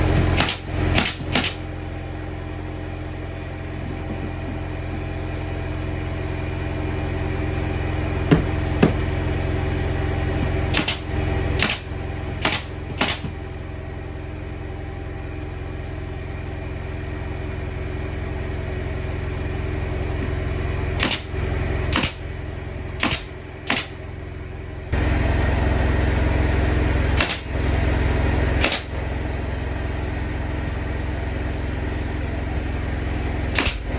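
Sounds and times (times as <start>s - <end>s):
engine running with low hum: 0.0s - 33.9s.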